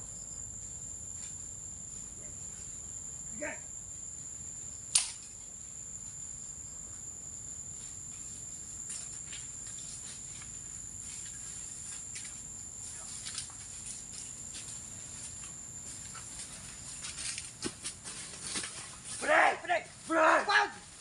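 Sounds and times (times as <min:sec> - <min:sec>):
insects droning in grass: 0:00.0 - 0:21.0
sharp click: 0:04.9 - 0:05.3
faint rustles: 0:06.9 - 0:20.2.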